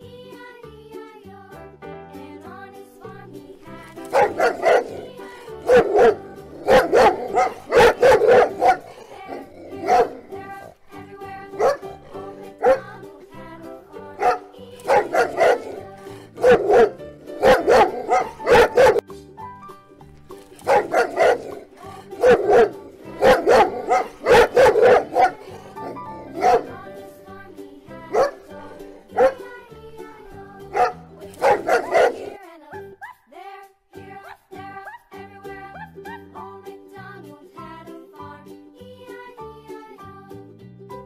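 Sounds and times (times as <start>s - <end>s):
light background music: 0.0s - 41.0s
dog barking: 3.6s - 13.1s, 14.2s - 19.0s, 20.5s - 27.0s, 28.1s - 29.6s, 30.7s - 32.4s.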